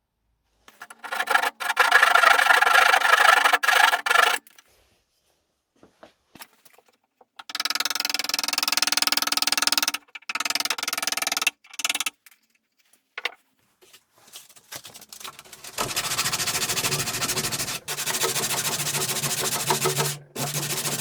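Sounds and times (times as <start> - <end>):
tool rasping on wood: 0.8 - 4.5, 15.2 - 21.0.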